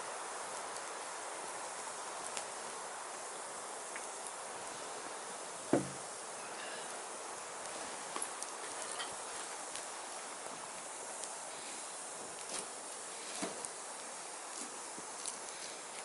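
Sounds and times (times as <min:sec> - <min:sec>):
firewood burning and crackling: 0:00.0 - 0:16.0
loud pop from fire: 0:05.7 - 0:06.1.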